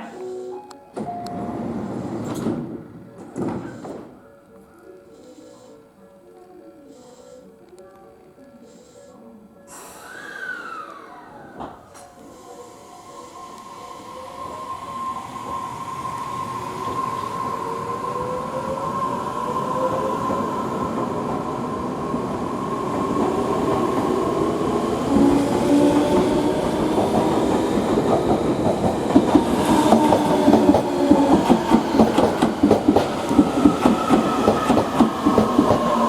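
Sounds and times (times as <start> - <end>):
electric train motor whine: 10.0 - 36.0.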